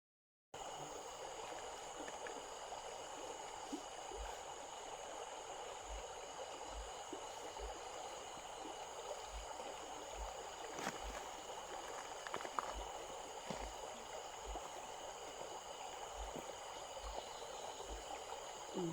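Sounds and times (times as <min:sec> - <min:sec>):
stream flowing: 0:00.6 - 0:18.9.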